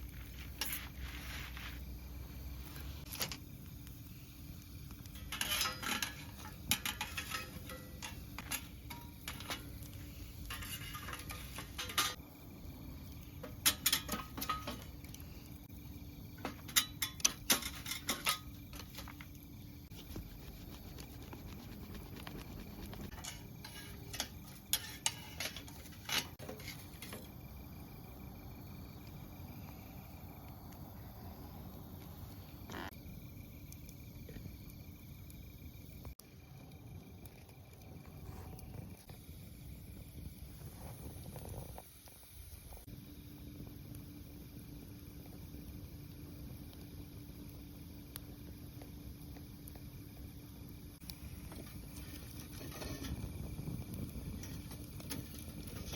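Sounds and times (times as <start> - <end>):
crickets chirping: 0.0 - 55.9
metal camp gear clinking: 5.2 - 12.2.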